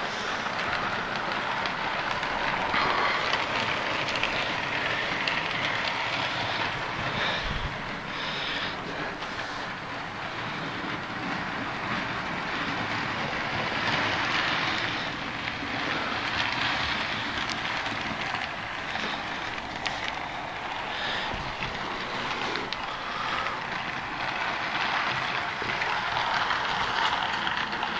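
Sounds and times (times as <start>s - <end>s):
model trains rolling on track: 0.0s - 27.9s.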